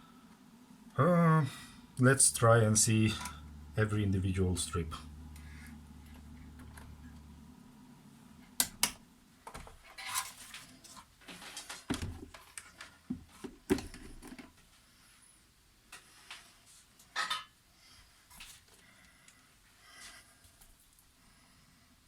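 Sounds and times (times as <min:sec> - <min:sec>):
low hum: 0:00.0 - 0:09.3
parts clattering on a workbench: 0:17.1 - 0:17.6.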